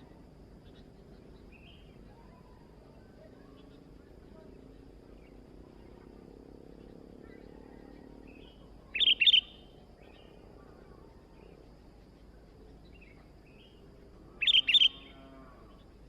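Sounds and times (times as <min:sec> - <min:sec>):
faint bird chirps: 0:00.0 - 0:16.0
bird calling: 0:08.3 - 0:09.7, 0:14.4 - 0:15.3.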